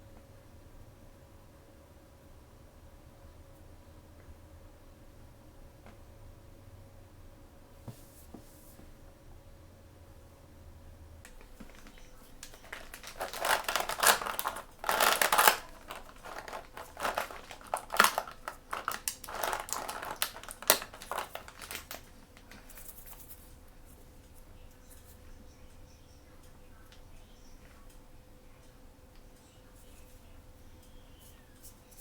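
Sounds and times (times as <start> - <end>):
packaging crinkling: 11.3 - 23.4.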